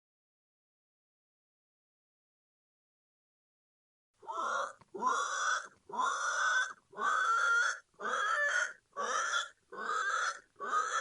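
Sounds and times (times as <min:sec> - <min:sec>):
pig squealing and oinking: 0:04.2 - 0:11.0.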